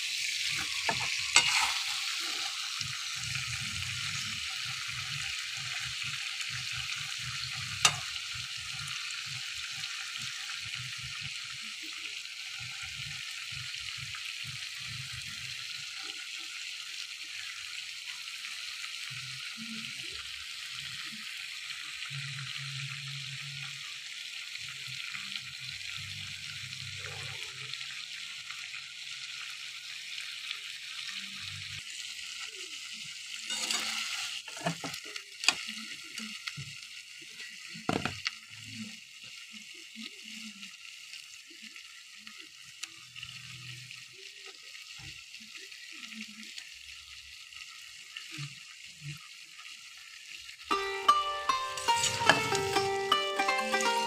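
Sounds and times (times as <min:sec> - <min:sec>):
potatoes sizzling in a pan: 0:00.0 - 0:54.0
sharp knocks and scrapes: 0:00.6 - 0:01.9, 0:33.5 - 0:35.0.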